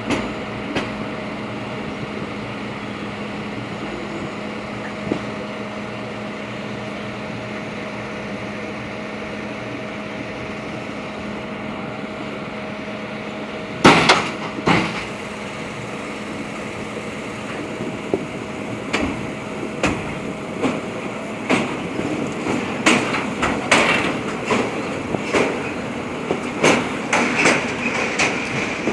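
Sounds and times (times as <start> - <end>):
train drone on bridge: 0.0 - 28.9
wheels clanking over rail joints: 0.0 - 28.9
heavy metallic clanks: 13.8 - 28.9.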